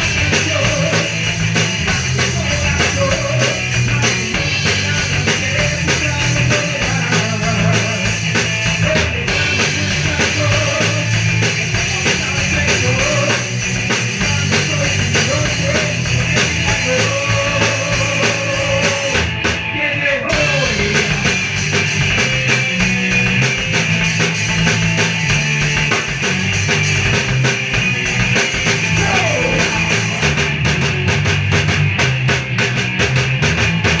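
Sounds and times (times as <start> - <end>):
drum kit: 0.0 - 34.0
electric guitar: 0.0 - 34.0
ska punk band playing: 0.0 - 34.0.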